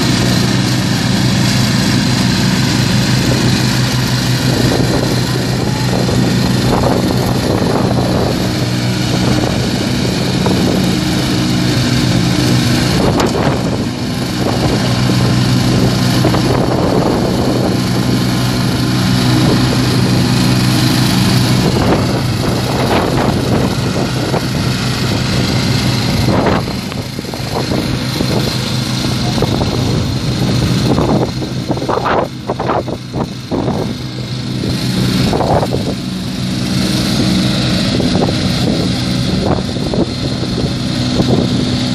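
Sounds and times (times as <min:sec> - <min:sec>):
lawn tractor engine running: 0:00.0 - 0:41.9.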